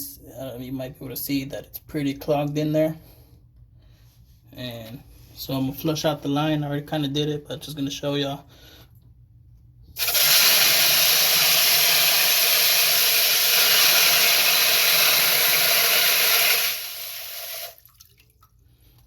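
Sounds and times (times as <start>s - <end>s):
water rushing into container: 10.0s - 18.5s.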